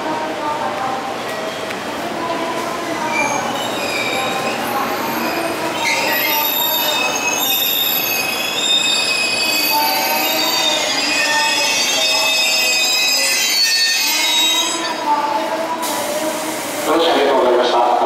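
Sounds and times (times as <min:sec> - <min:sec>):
train wheels squealing: 0:03.1 - 0:15.0.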